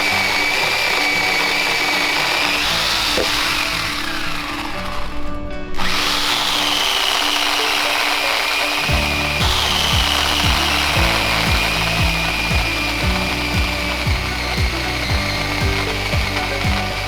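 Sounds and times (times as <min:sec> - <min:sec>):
power tool motor whining: 0:00.0 - 0:05.2, 0:05.8 - 0:17.0
background music with low beat: 0:08.9 - 0:17.0.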